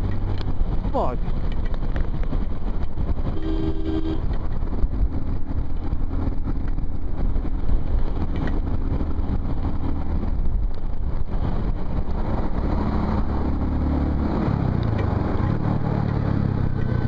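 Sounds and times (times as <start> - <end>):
motorcycle engine noise: 0.0 - 17.0
wind buffeting: 0.0 - 17.0
vehicle horn: 3.3 - 4.3.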